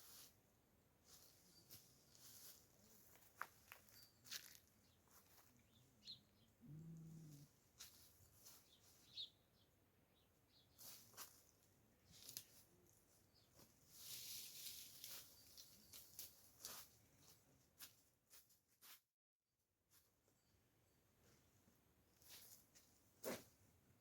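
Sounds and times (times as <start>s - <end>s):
small bird chirps: 5.7s - 7.0s, 8.4s - 11.0s.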